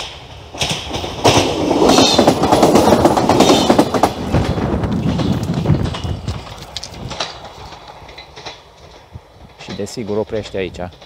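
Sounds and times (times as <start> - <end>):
train rushing past: 0.0 - 11.0
wheels clattering over rail joints: 0.0 - 11.0.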